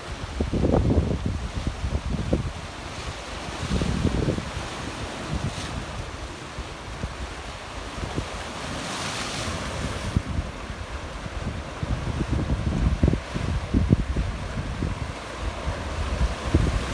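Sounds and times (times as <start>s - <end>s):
waves splashing on rocky shore: 0.0s - 16.9s
wind buffeting microphone: 0.2s - 8.4s, 9.6s - 16.9s.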